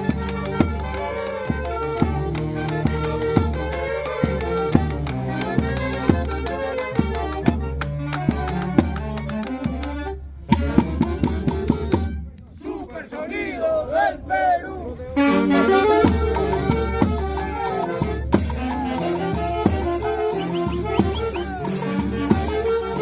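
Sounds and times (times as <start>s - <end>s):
held melody line: 0.0s - 12.3s, 15.2s - 23.0s
drum strikes: 18.2s - 23.0s.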